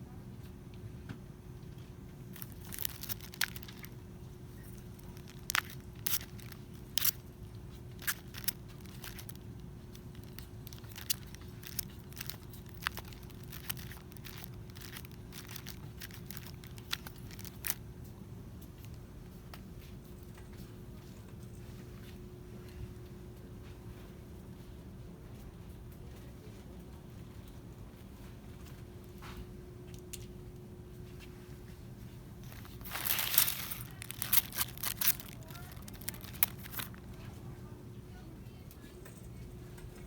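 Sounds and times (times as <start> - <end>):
packaging crinkling and clicking: 2.3 - 4.0, 4.6 - 17.8, 32.4 - 37.2.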